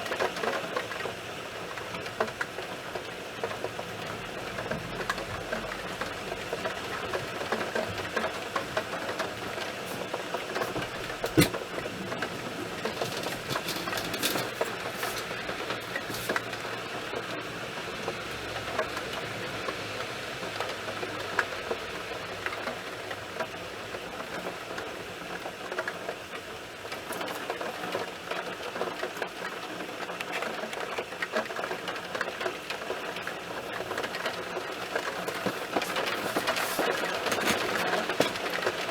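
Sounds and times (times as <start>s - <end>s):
heavy rain on hard surfaces: 0.0s - 38.9s.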